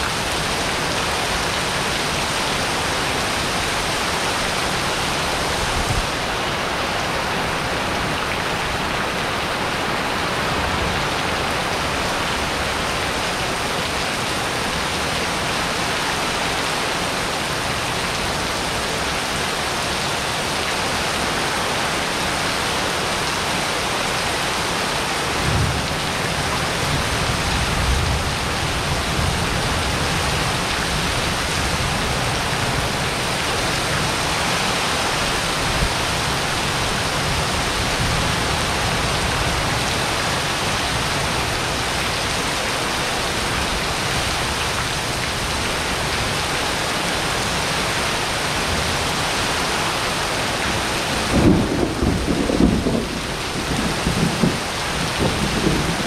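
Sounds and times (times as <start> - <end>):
heavy rain on paving: 0.0 - 56.0
water streaming off roof: 0.0 - 56.0
low rumble of thunder: 51.2 - 56.0.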